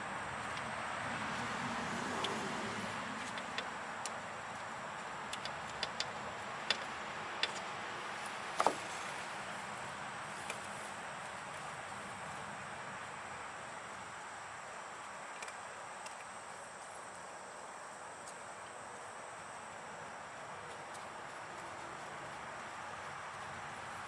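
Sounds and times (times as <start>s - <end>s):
steady background hiss: 0.0s - 24.0s.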